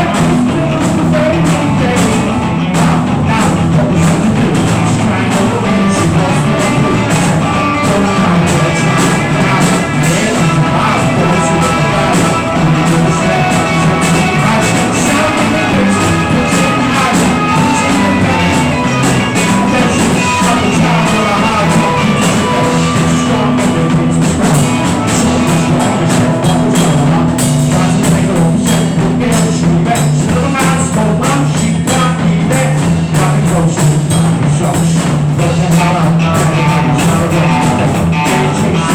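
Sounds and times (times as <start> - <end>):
drum kit and cymbal hits: 0.0 - 38.9
rock band playing: 0.0 - 38.9.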